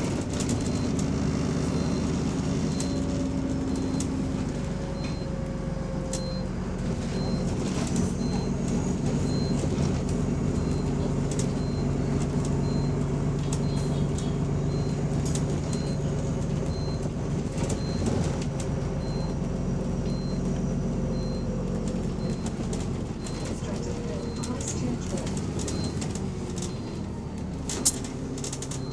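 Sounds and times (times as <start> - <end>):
diesel bus engine idling: 0.0 - 28.9.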